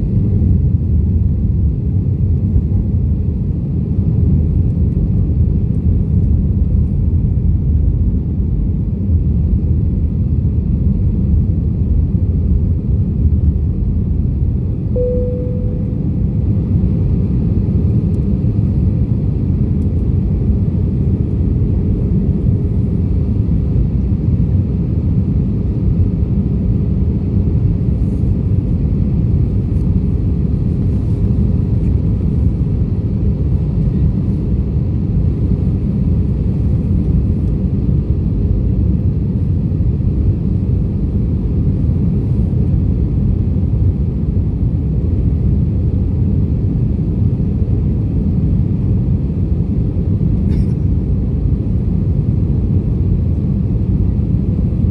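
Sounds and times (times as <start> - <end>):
jet airliner low rumble: 0.0 - 54.9
faint tone: 14.9 - 16.6.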